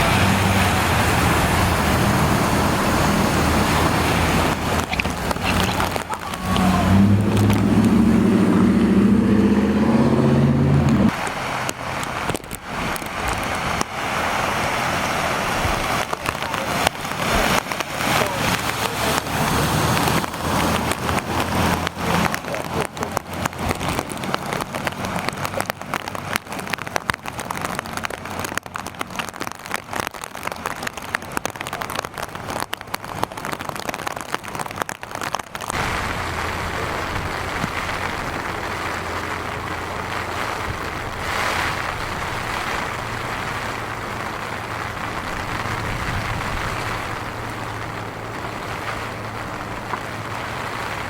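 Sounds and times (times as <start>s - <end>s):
low rumble: 0.0s - 11.4s
rain falling: 0.0s - 51.0s.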